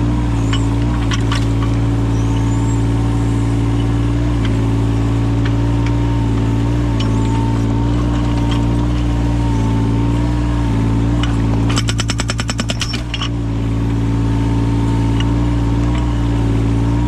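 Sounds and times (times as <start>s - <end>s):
diesel engine running: 0.0s - 17.0s
hydraulic breaker hammering: 11.2s - 13.4s.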